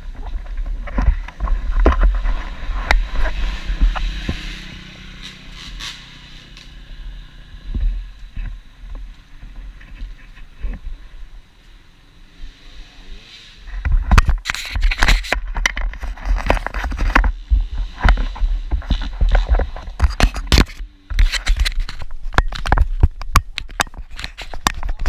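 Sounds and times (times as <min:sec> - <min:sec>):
wind rumble: 0:00.0 - 0:11.7
motorbike engine at low revs: 0:00.0 - 0:25.0.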